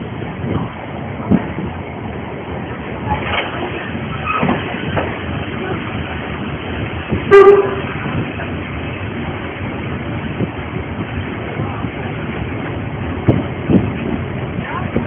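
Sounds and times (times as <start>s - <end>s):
train carriages rumbling on track: 0.0s - 15.0s
steam locomotive whistle toot: 7.3s - 7.9s.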